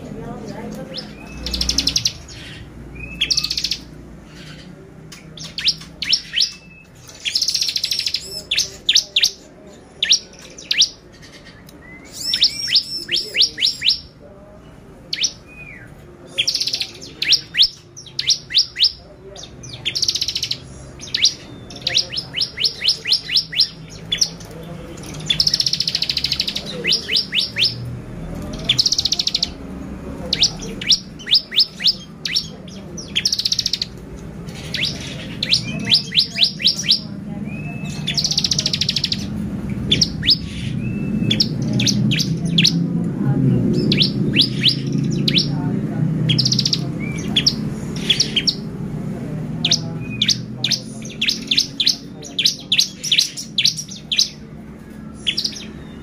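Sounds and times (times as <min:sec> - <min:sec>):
bird singing high trills: 0:00.9 - 0:14.2, 0:15.1 - 0:29.6, 0:30.3 - 0:39.3, 0:39.9 - 0:42.8, 0:43.7 - 0:45.6.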